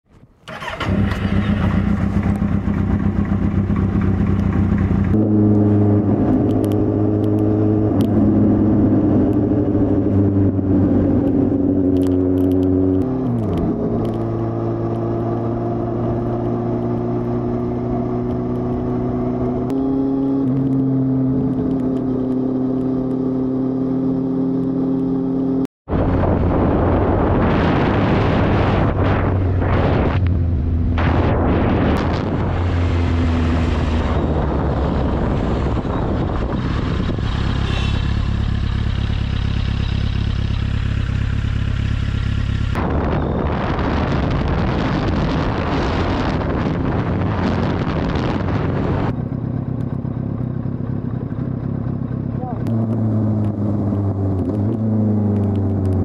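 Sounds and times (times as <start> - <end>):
motorcycle engine running: 0.5 - 24.1, 24.9 - 56.0
wind rushing: 25.9 - 38.0, 42.7 - 49.2.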